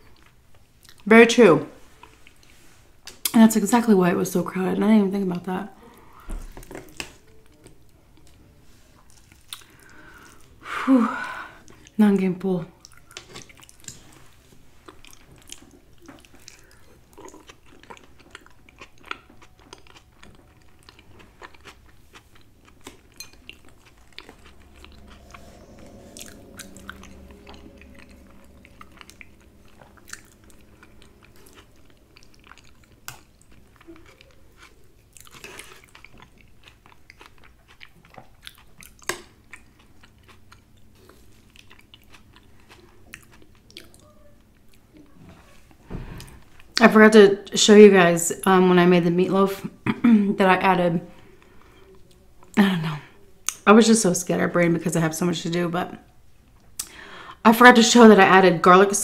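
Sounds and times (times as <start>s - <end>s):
chewing soft food: 5.8s - 10.6s, 12.8s - 46.8s
low hum: 12.8s - 35.6s.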